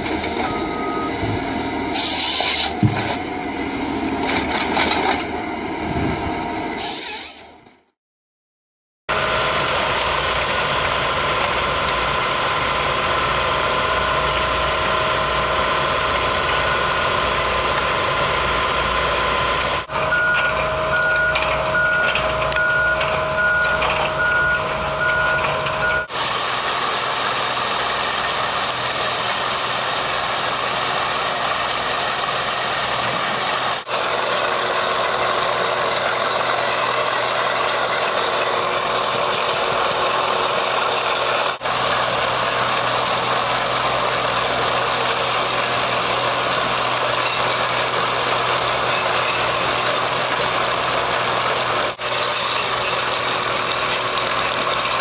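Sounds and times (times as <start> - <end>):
vehicle reversing alarm beeping: 0.0 - 4.2, 13.3 - 17.7, 19.4 - 26.2
heavy machinery engines running: 0.0 - 8.0, 9.1 - 55.0.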